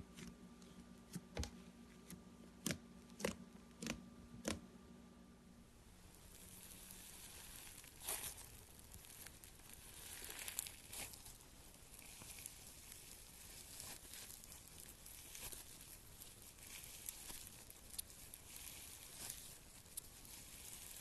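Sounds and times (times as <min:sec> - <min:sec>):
slime crackling and popping: 0:06.1 - 0:21.0.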